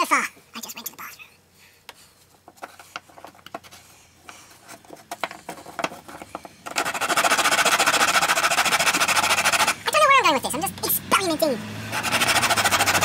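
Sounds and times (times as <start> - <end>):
clicks and knocks of handling: 4.3 - 6.8
loud rapidly pulsing noise: 10.5 - 13.0.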